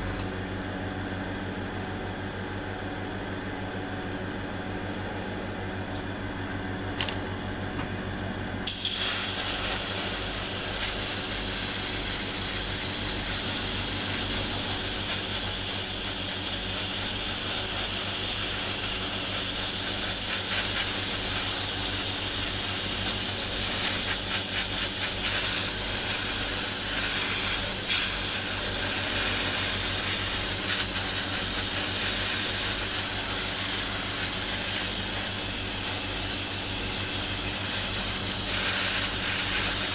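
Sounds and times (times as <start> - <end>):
air compressor humming: 0.0 - 39.9
airbrush hissing: 8.7 - 39.9.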